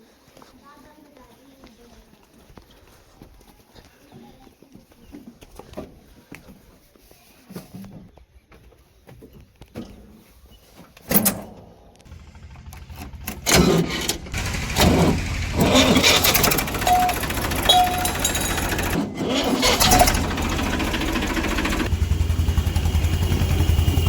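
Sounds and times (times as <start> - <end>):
clatter and knocks: 12.1 - 21.9
diesel engine of farm machinery: 12.1 - 24.0.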